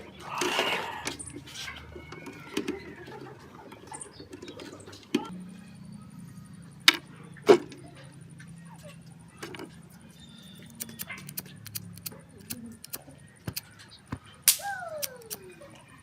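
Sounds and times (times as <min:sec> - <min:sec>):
metallic clicks of parts handled: 0:10.6 - 0:13.9, 0:14.5 - 0:15.5.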